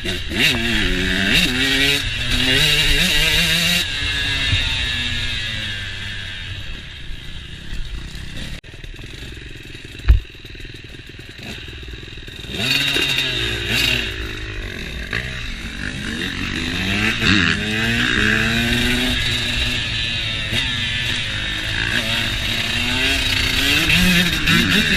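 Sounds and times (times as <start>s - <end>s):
motocross bike engines revving: 0.0s - 24.9s
sharp loud thump: 10.0s - 10.3s.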